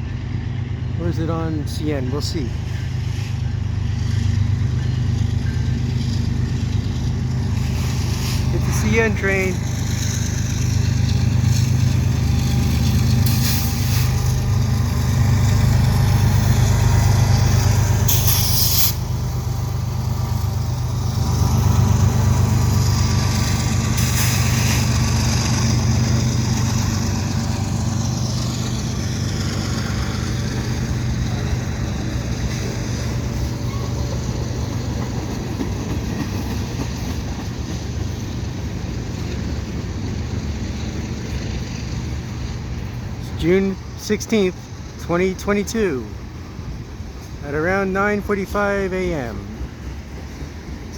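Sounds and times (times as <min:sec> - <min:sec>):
diesel locomotive engine drone: 0:00.0 - 0:50.9
freight train passing: 0:00.0 - 0:50.9
brief high-pitched flares: 0:18.1 - 0:19.0.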